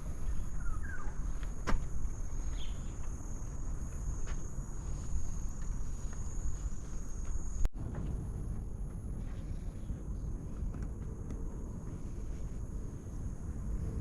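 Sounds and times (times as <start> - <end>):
insects high-pitched drone: 0.0 - 14.0
low rumble: 7.6 - 14.0.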